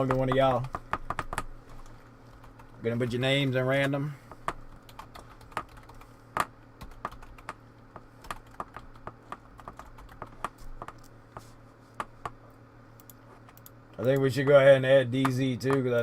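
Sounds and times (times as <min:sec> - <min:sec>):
faint low hum: 0:00.0 - 0:16.0
typing on a keyboard: 0:04.7 - 0:06.0, 0:06.8 - 0:07.6, 0:08.2 - 0:11.1.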